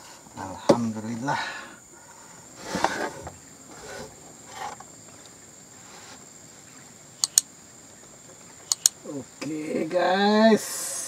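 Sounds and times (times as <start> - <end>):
high-pitched insect drone: 8.6 - 11.0.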